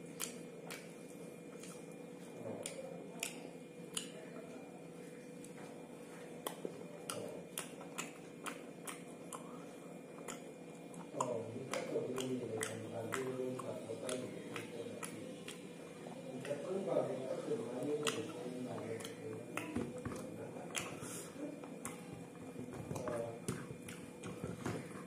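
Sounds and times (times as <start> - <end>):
wet chewing and lip smacks: 0.0 - 4.2, 6.4 - 16.7, 17.8 - 23.2.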